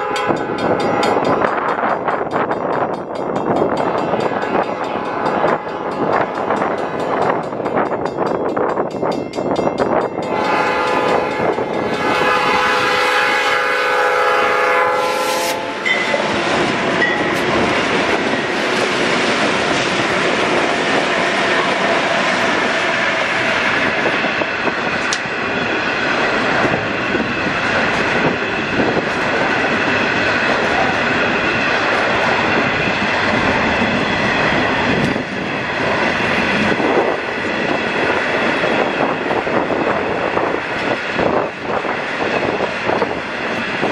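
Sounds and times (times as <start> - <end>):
train chime air horn: 0.0 - 1.7, 3.9 - 7.9, 10.2 - 17.4
train wheels rumbling and rattling: 0.0 - 43.9.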